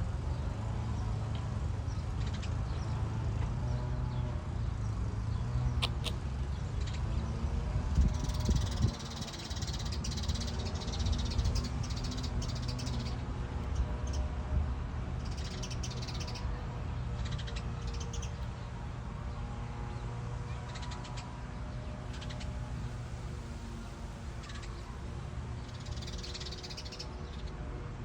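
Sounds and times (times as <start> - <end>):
birds calling in harsh bursts: 5.6 - 7.2, 25.6 - 27.5.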